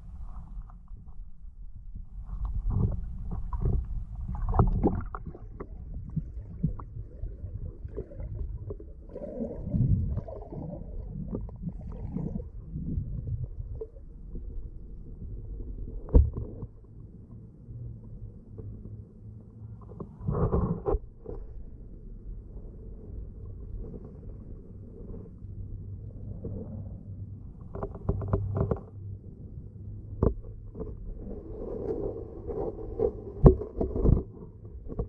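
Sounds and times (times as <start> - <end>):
muffled underwater water sloshing: 0.0 - 35.0
underwater knocks: 2.7 - 8.8, 16.0 - 16.8.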